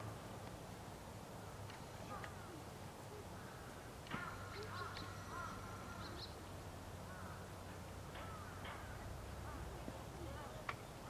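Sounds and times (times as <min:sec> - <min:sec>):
low steady hum: 0:00.0 - 0:11.0
faint birds calling: 0:01.3 - 0:09.7.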